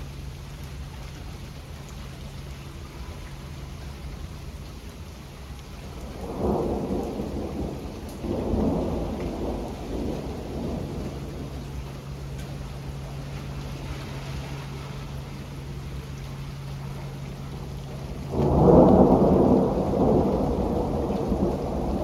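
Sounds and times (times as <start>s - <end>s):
steady rain: 0.0s - 22.0s
rolling thunder: 5.6s - 22.0s.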